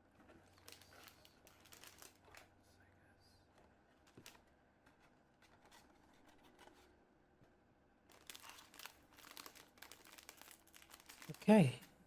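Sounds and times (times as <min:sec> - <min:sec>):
plastic bags crinkling: 0:00.5 - 0:02.5, 0:08.1 - 0:11.7.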